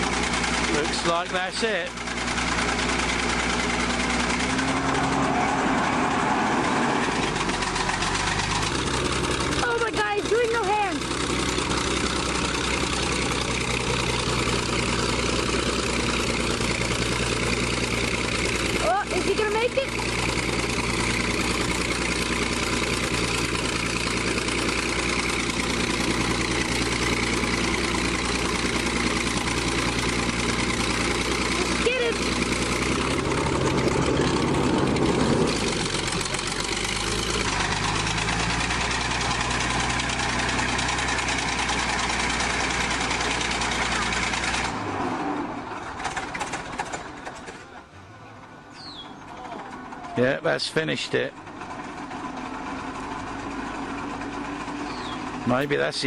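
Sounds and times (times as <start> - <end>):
bulldozer diesel engine running: 0.0 - 56.0
fast even clatter: 45.8 - 47.8.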